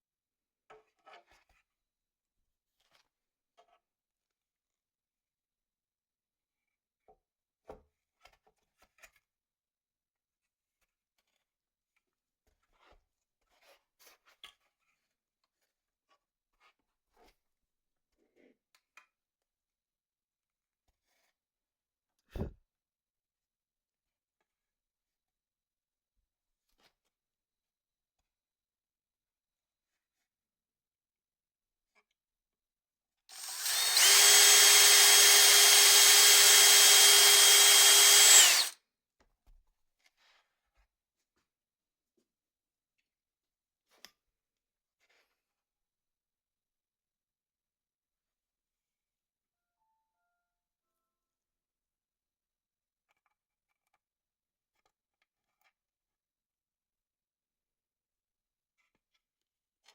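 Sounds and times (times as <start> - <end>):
electric drill whining: 33.3 - 38.8.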